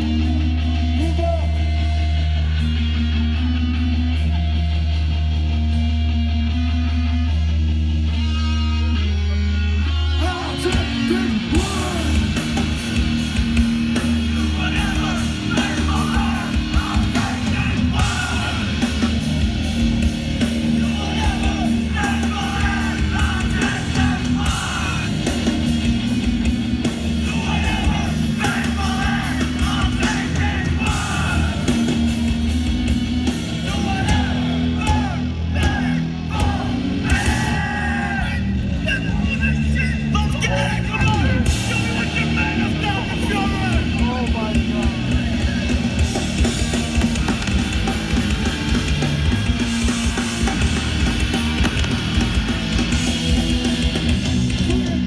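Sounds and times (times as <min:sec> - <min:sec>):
bass guitar: 0:00.0 - 0:55.0
heavy guitars: 0:00.0 - 0:55.0
yelled vocals: 0:09.8 - 0:55.0
pounding drums: 0:11.6 - 0:37.8, 0:41.1 - 0:55.0.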